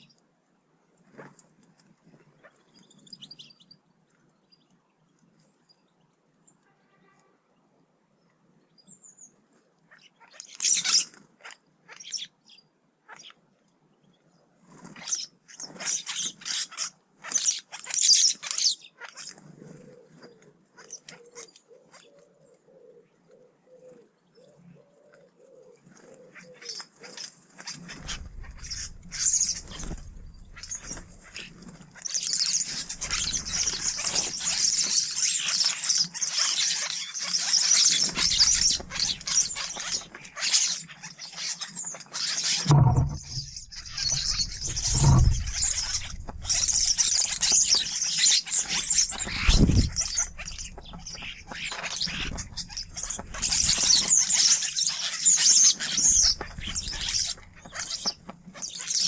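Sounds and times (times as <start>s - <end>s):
small birds chirping: 2.1s - 6.6s, 8.2s - 59.0s
low thumps: 27.9s - 31.2s, 42.6s - 47.5s, 49.0s - 51.5s.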